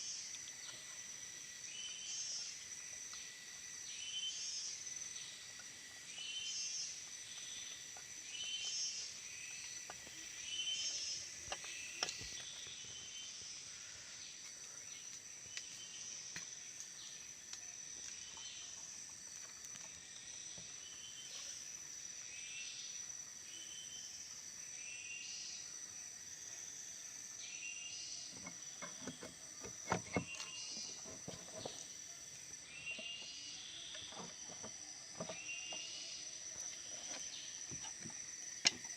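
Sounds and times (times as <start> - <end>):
high-pitched insect drone: 0.0 - 38.9.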